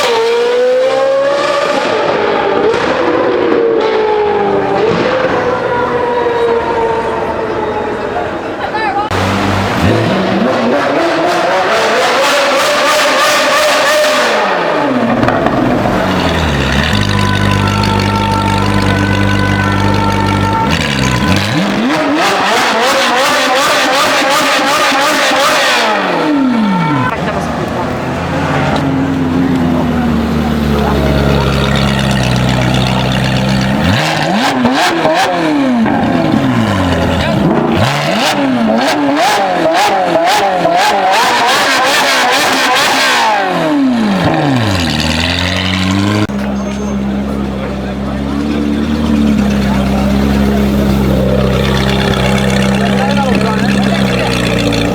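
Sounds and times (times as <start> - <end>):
sports car engine accelerating: 0.0 - 54.9
exhaust popping and crackling: 13.0 - 54.9.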